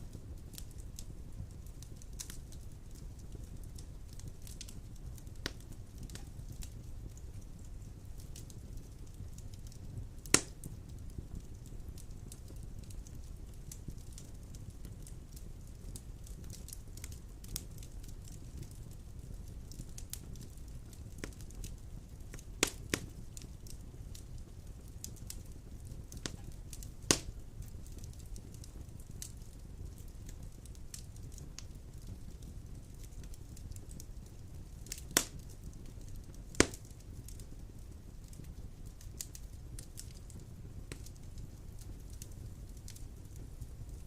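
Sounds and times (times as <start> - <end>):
wood fire burning: 0.0 - 44.0
loud pop of burning wood: 5.4 - 6.7, 10.2 - 10.8, 22.3 - 23.8, 26.1 - 27.4, 34.8 - 35.5, 36.1 - 37.4
fire sharp pop: 10.3 - 10.6, 22.6 - 23.1, 26.2 - 27.3, 35.1 - 35.4, 36.6 - 36.9.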